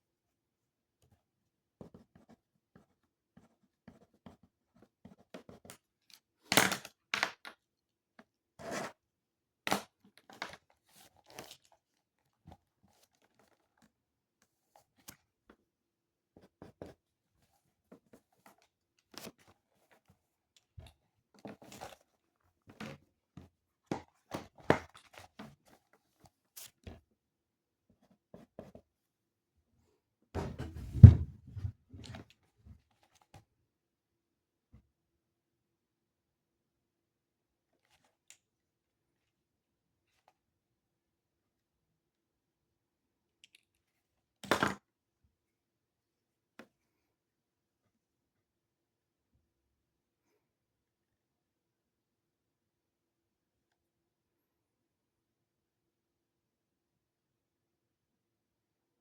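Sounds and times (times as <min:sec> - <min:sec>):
knock on desk: 0:30.4 - 0:31.7.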